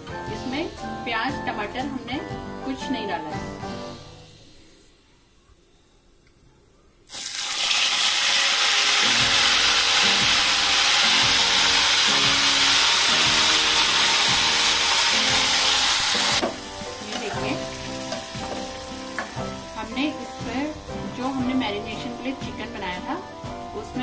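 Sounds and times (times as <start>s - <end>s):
chicken sizzling in hot oil: 7.1s - 22.9s.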